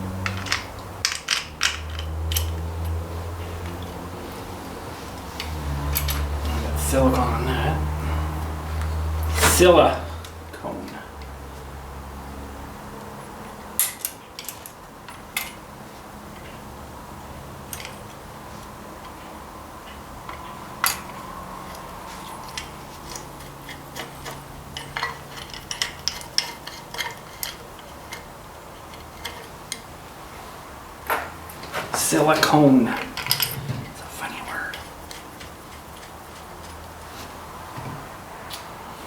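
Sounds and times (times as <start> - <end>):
metal parts and tools clicking: 0.2 - 4.1, 5.0 - 6.5, 20.3 - 29.9, 32.4 - 37.0.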